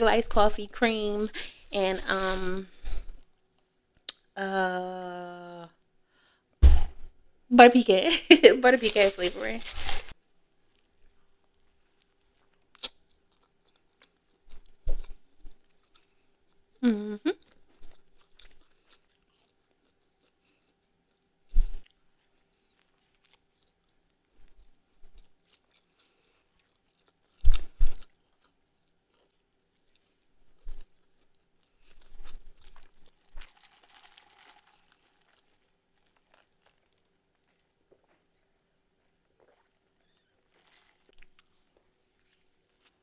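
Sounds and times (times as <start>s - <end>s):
crunchy bites and chewing: 8.8s - 10.2s, 10.8s - 16.7s, 17.4s - 38.4s, 39.4s - 43.0s.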